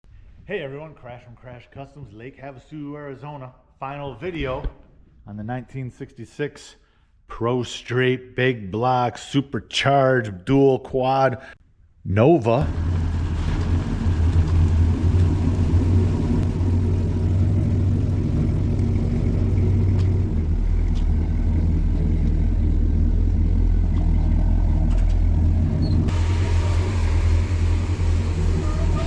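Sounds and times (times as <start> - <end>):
engine deep steady rumble: 12.6 - 29.0.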